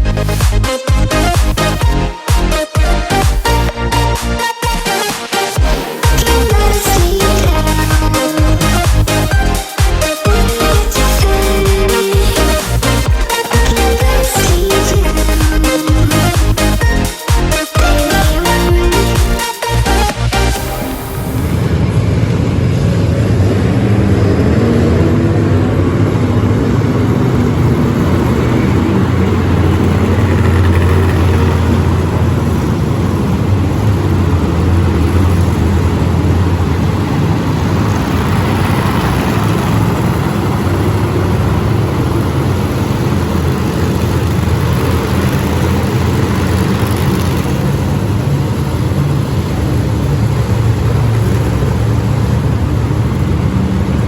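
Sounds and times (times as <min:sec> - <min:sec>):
monster truck engines revving: 0:00.0 - 0:54.0.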